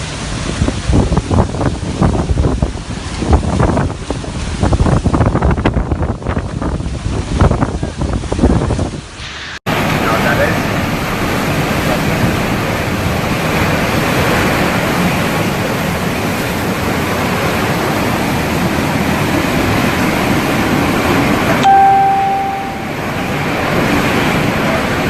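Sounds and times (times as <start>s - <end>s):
wind blasting microphone: 0.0s - 25.0s
steady electronic tone: 21.6s - 23.3s.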